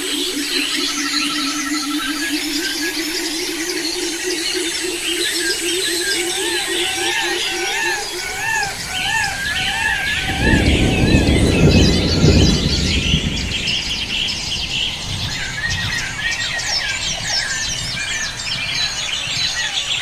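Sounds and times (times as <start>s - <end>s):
birds chirping: 0.0s - 20.0s
wavering bird whistle: 0.2s - 12.6s
low rumbling noise: 7.6s - 19.2s.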